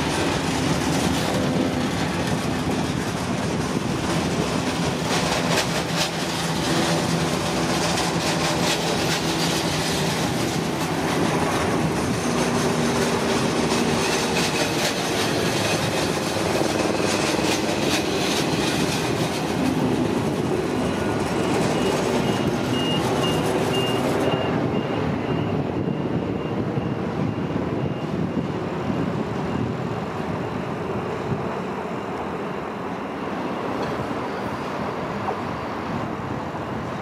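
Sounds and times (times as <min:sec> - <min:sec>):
train coaches rattling along track: 0:00.0 - 0:37.0.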